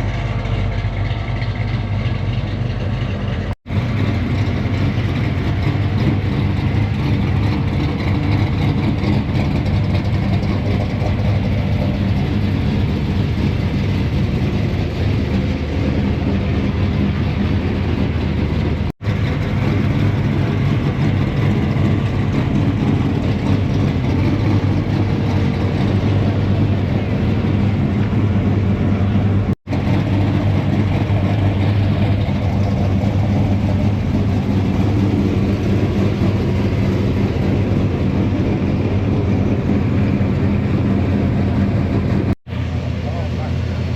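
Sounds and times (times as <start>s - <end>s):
car engines rumbling: 0.0s - 43.9s.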